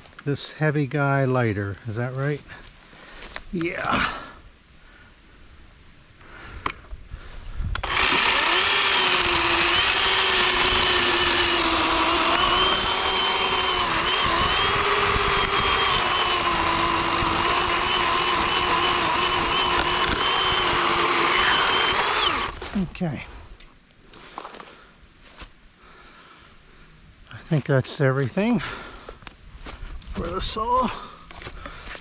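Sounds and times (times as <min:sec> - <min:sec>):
electric chainsaw cutting log: 0:07.8 - 0:22.7.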